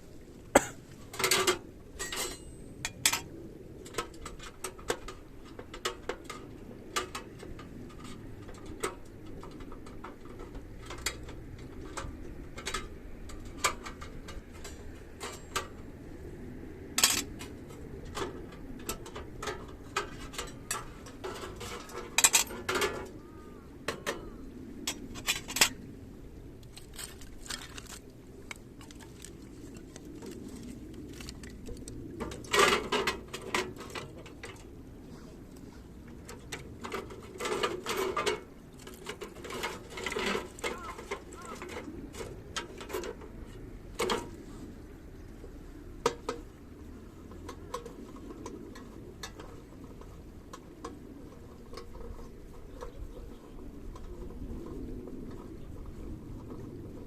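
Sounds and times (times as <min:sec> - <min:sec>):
metal clinking on metal: 0:01.2 - 0:03.2.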